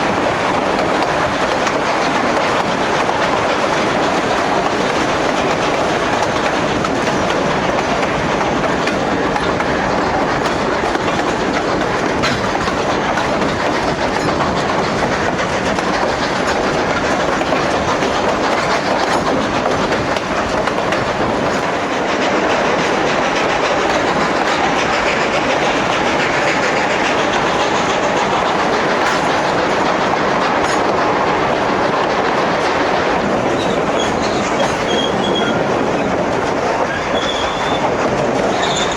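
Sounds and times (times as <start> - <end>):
train wheels on rails: 0.0 - 38.9
high wheel squeal: 33.5 - 35.6, 36.8 - 37.9, 38.5 - 38.9.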